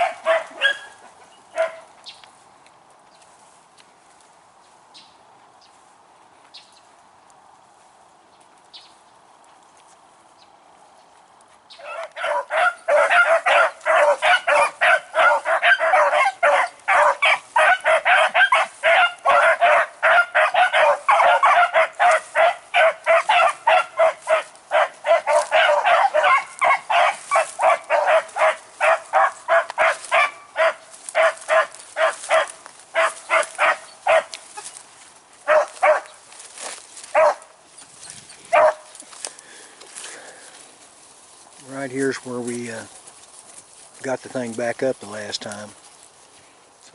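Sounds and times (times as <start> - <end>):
dogs baying and barking: 0.0 - 2.0, 11.8 - 39.3.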